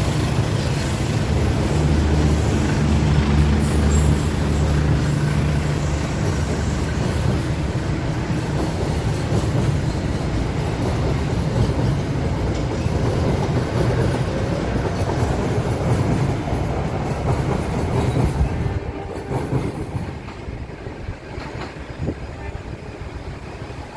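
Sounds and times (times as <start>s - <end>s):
wheels clicking over rail joints: 0.0s - 22.1s
train carriages rumbling past: 0.0s - 23.9s.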